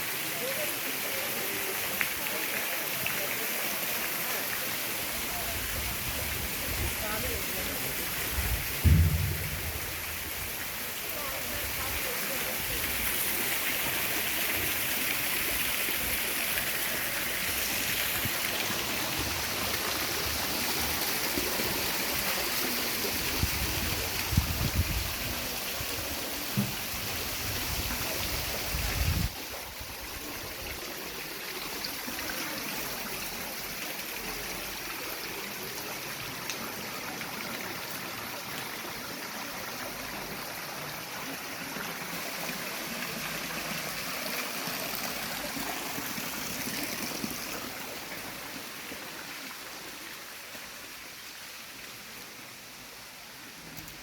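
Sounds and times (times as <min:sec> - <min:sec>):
waterfall and stream rushing: 0:00.0 - 0:54.0
low bumps: 0:08.7 - 0:10.6.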